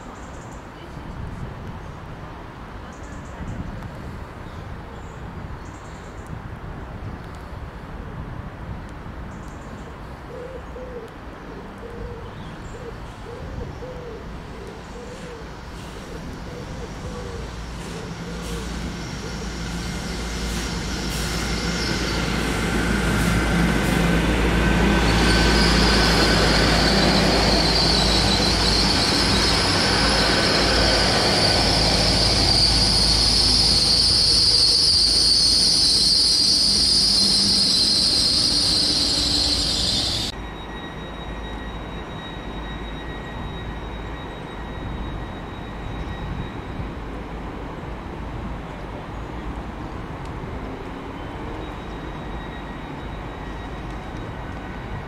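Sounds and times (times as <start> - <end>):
train wheels rumbling on rails: 15.0 - 55.0
high-pitched hiss: 15.6 - 41.2.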